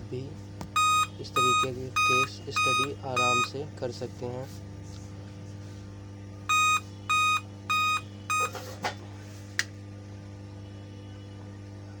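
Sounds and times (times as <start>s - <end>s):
steady low hum: 0.0s - 12.0s
motherboard short beeps: 0.8s - 3.5s, 6.5s - 8.6s.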